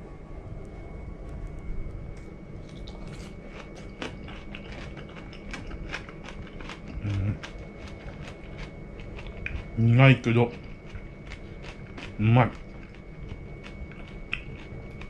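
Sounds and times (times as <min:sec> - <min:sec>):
crisp chewing crunches: 0:02.6 - 0:15.0.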